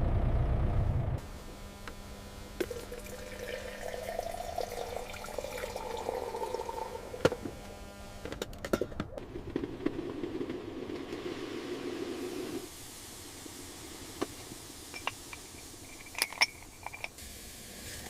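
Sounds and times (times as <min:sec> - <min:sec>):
liquid pouring into a container: 0:02.7 - 0:07.2.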